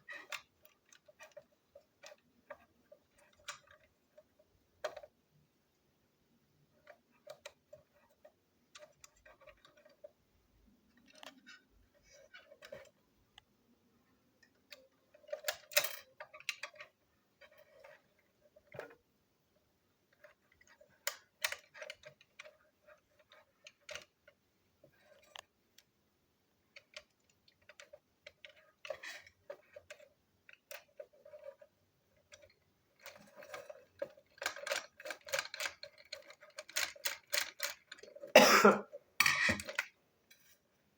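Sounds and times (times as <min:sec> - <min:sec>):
plastic toy parts clicking: 0:00.0 - 0:05.1, 0:06.8 - 0:10.1, 0:10.9 - 0:13.0, 0:14.4 - 0:19.0, 0:20.1 - 0:25.9, 0:26.7 - 0:38.3, 0:39.2 - 0:40.0.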